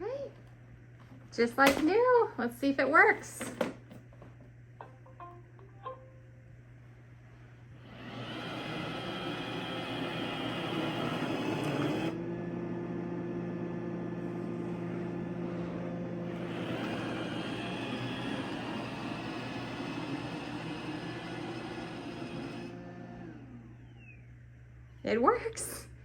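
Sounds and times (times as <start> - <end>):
robot vacuum whirring: 7.8 - 12.2, 16.2 - 24.1.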